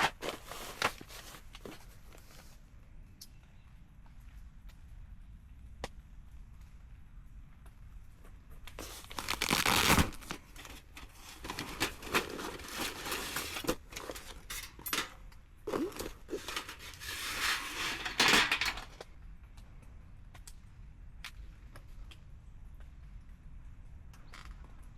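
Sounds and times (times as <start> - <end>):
rustling and crinkling handling: 0.0 - 2.7, 8.2 - 19.0.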